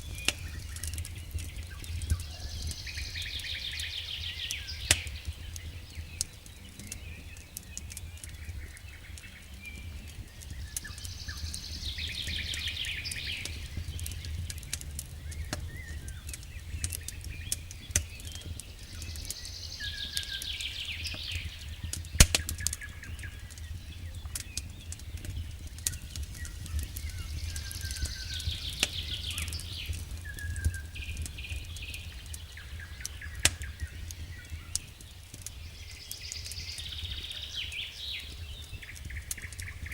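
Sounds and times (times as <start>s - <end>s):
bird singing trills: 0.0s - 14.6s, 15.2s - 39.9s
wood fire crackling and popping: 0.0s - 39.9s.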